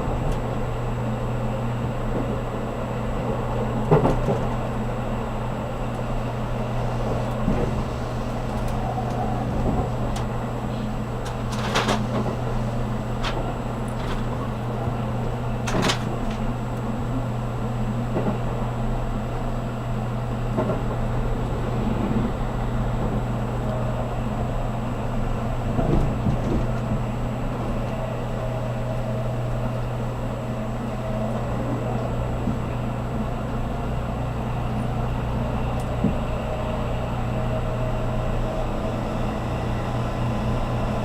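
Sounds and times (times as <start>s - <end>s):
train cabin rumble and hum: 0.0s - 41.0s.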